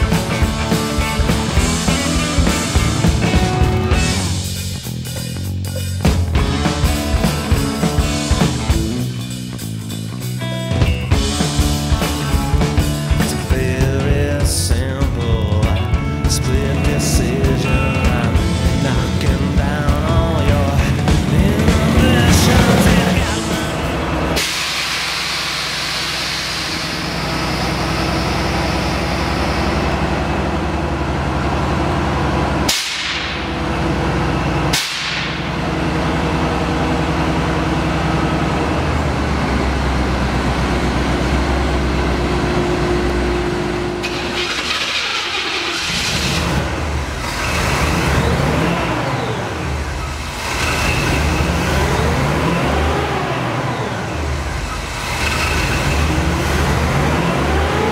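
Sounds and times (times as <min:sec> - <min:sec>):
truck engine running: 0:00.0 - 0:57.9.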